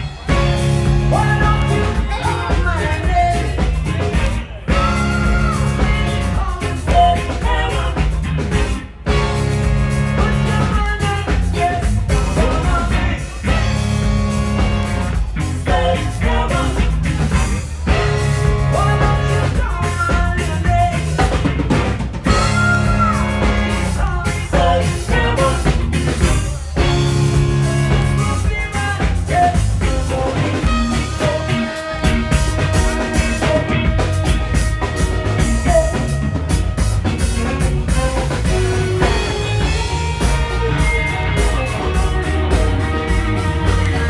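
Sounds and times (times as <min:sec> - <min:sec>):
drum kit: 0:00.0 - 0:44.0
live rock band playing: 0:00.0 - 0:44.0
person singing: 0:00.4 - 0:09.3, 0:10.2 - 0:14.8, 0:15.4 - 0:21.5, 0:22.3 - 0:34.6.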